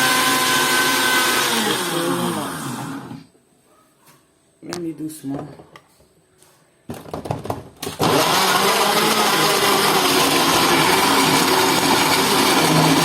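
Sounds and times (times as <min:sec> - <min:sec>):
electric blender running: 0:00.0 - 0:03.3, 0:07.8 - 0:13.0
knocks and clatters: 0:06.9 - 0:07.9.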